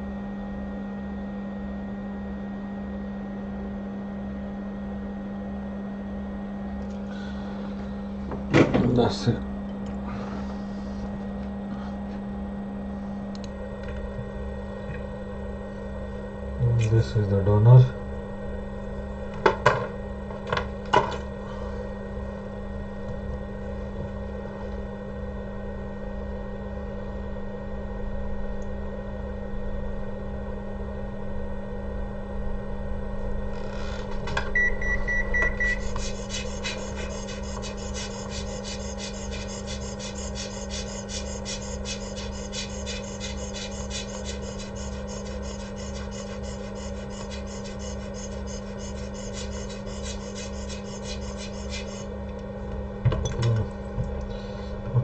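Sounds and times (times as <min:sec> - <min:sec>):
electrical hum: 0:00.0 - 0:55.0
hot air rework station blowing: 0:35.7 - 0:52.1.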